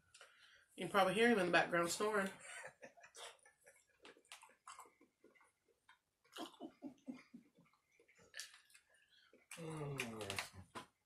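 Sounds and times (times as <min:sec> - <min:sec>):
wet chewing and lip-smacking: 0:03.1 - 0:06.6, 0:07.6 - 0:10.5.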